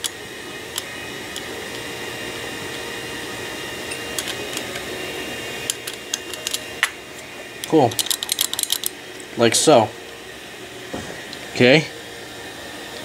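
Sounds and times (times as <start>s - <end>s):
steady background hum: 0.0s - 13.0s
small metal parts clicking: 3.9s - 4.8s, 5.7s - 6.6s, 7.6s - 8.9s.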